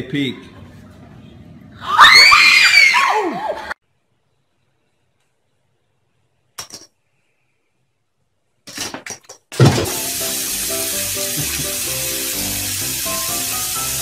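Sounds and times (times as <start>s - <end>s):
background music: 9.8s - 14.0s.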